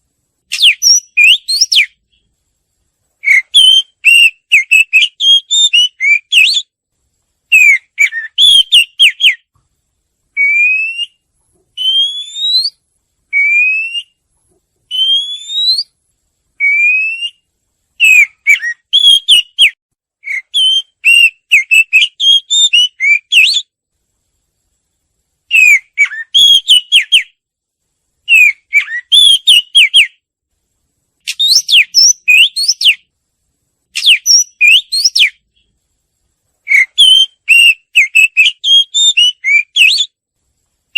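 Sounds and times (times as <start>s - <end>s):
songbird singing: 0.4s - 2.4s, 3.2s - 6.8s, 7.5s - 9.6s, 10.3s - 14.2s, 14.8s - 16.0s, 16.6s - 23.8s, 25.5s - 27.4s, 28.2s - 30.2s, 31.2s - 33.1s, 33.9s - 35.8s, 36.6s - 40.2s.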